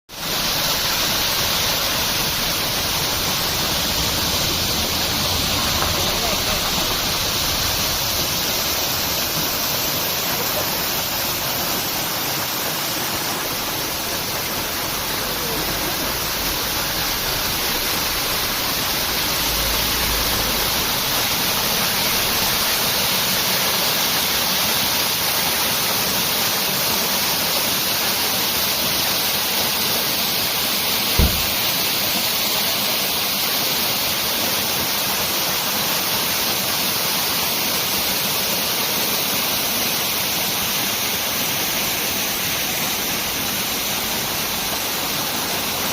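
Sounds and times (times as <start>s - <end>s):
waterfall rushing: 0.1s - 45.9s
low thump: 31.2s - 31.7s.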